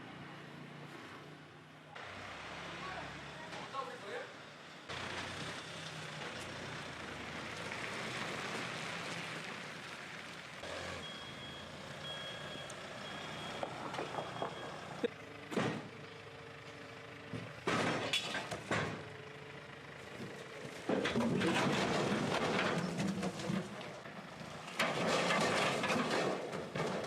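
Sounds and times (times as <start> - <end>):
engine running: 0.0 - 27.0
backup alarm beeping: 11.0 - 15.1.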